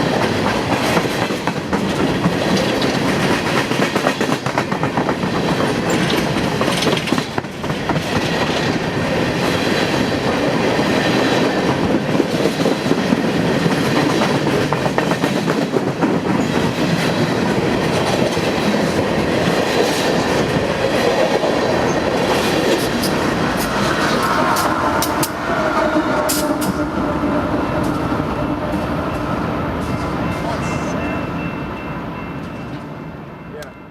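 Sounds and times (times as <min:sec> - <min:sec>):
train cars rumbling past: 0:00.0 - 0:33.9
wheels clicking over rail joints: 0:00.4 - 0:08.8.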